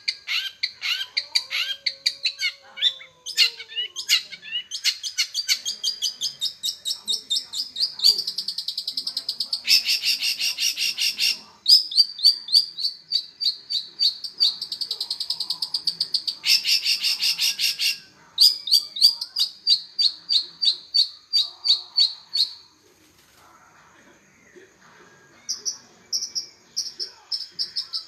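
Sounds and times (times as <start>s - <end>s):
bird singing trills and chips: 0.0s - 22.7s.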